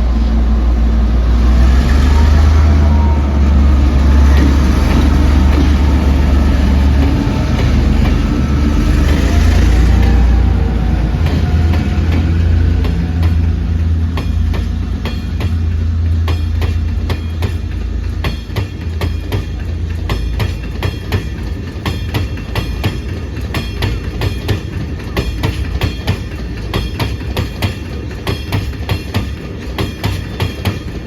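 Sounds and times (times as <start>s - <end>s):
locomotive engine drone: 0.0s - 26.6s
train wheels clacking over rail joints: 1.3s - 31.0s.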